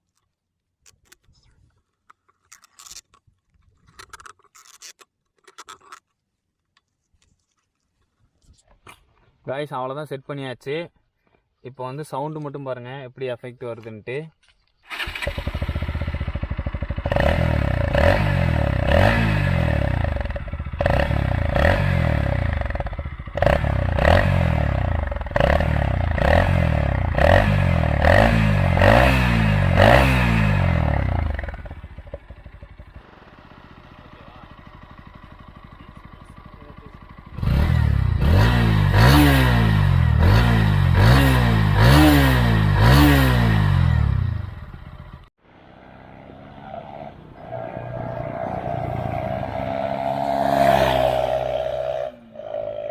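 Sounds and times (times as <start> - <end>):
motorcycle engine revving: 14.9 - 52.9.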